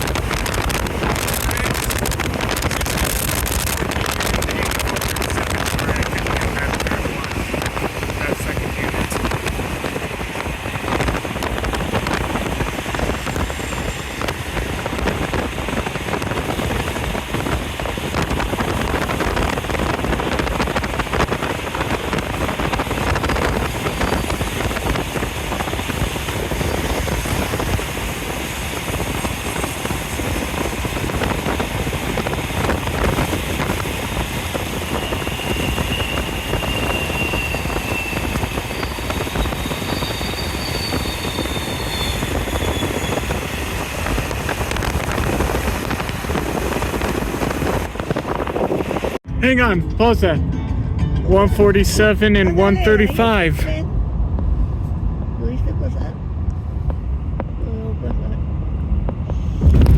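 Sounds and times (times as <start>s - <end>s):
train wheels rumbling on rail: 0.0s - 49.3s
wind buffeting microphone: 0.0s - 49.7s, 53.7s - 59.9s
high squeal: 34.8s - 44.0s.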